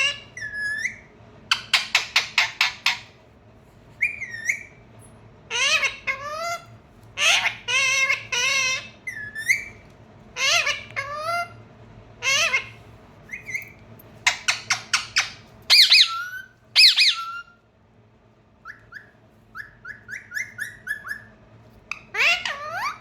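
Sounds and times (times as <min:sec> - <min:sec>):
parrot squawking: 0:00.0 - 0:03.2, 0:04.0 - 0:04.8, 0:05.5 - 0:09.8, 0:10.4 - 0:11.6, 0:12.2 - 0:17.6, 0:18.6 - 0:23.0
parrot clicking chirps: 0:01.5 - 0:03.1.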